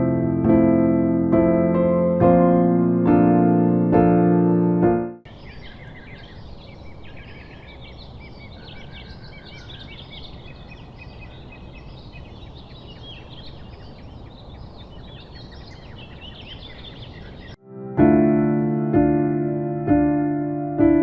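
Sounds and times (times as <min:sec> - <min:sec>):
small birds chirping: 0:05.2 - 0:17.6.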